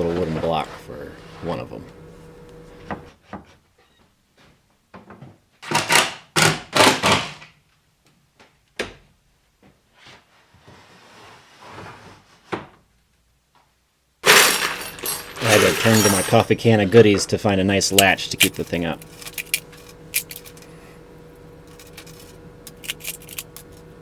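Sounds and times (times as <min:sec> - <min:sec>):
wooden scraping: 0:00.0 - 0:03.1, 0:14.2 - 0:23.9.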